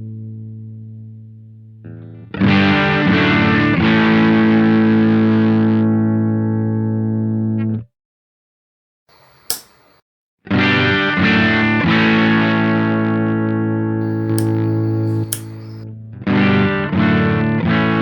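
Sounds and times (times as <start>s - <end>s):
sharp click: 9.1s - 10.0s, 14.0s - 15.8s.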